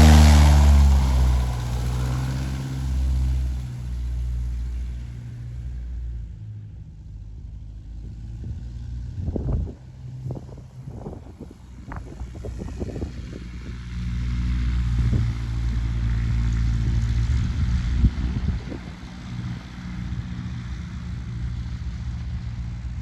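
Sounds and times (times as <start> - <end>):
propeller aircraft engine drone: 0.0 - 23.0
wind buffeting microphone: 8.3 - 14.0, 16.6 - 19.6.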